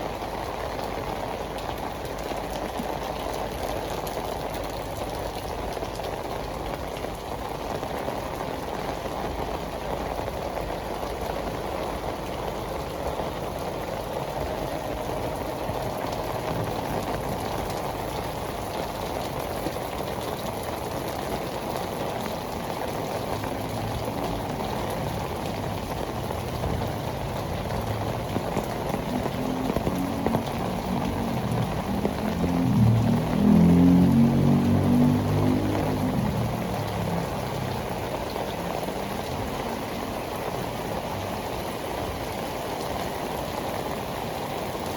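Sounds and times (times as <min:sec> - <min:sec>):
heavy rain on pavement: 0:00.0 - 0:44.9.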